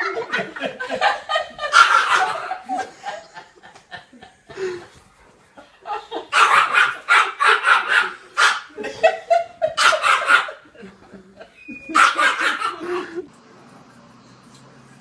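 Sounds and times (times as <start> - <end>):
dog barking: 1.6 - 2.7, 6.3 - 8.8, 9.7 - 10.6, 11.9 - 13.2.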